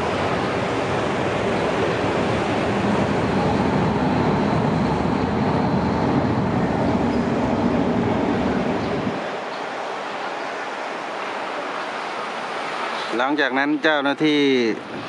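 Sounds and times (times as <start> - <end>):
train rumbling past: 0.0 - 9.8.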